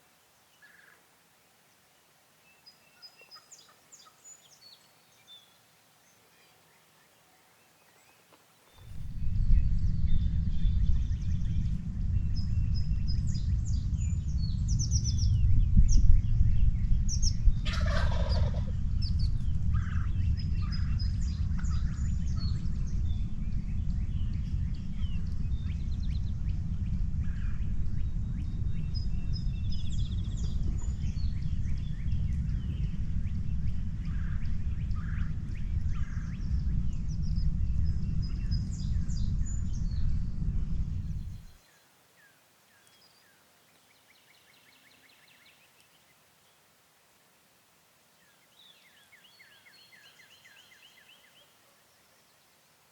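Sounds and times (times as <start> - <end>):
songbird chirps: 0.0 - 18.5, 41.0 - 52.9
low rumble: 8.9 - 41.5
turkey gobbling: 17.6 - 18.7.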